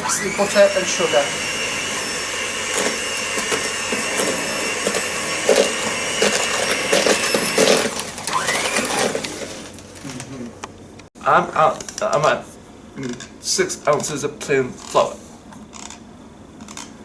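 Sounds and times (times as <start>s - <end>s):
electric mixer running: 0.0s - 9.9s.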